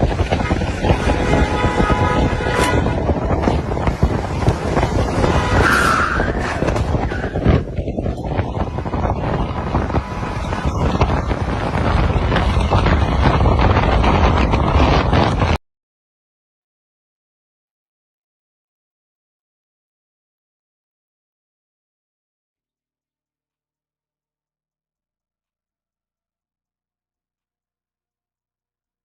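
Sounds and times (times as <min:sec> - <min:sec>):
car road and wind rumble: 0:00.0 - 0:15.6.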